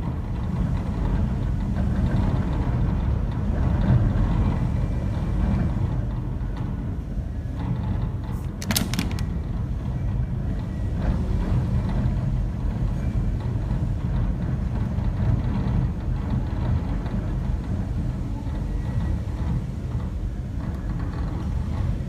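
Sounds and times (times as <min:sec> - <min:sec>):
sharp clicks or rattles: 0:08.4 - 0:09.5.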